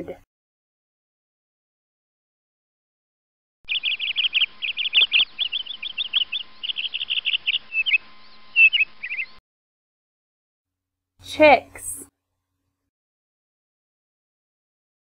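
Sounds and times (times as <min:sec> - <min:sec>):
bird chirping: 0:03.7 - 0:09.4.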